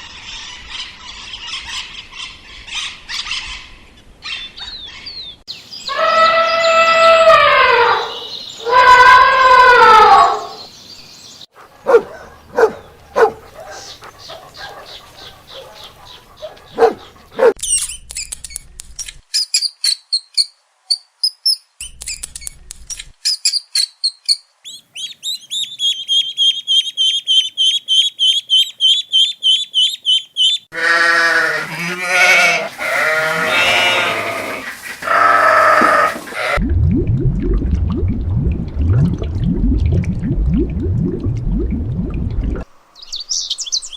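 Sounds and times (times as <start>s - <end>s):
loud wavering animal calls: 30.7s - 36.6s.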